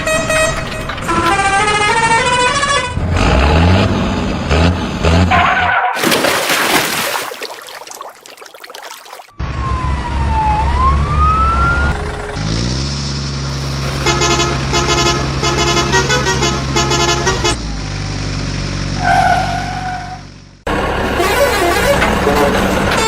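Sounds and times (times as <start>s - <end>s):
truck horn honk: 0.0s - 3.0s, 13.9s - 17.6s, 21.0s - 23.0s
dump truck engine running: 0.0s - 5.3s, 10.9s - 19.1s, 20.2s - 23.0s.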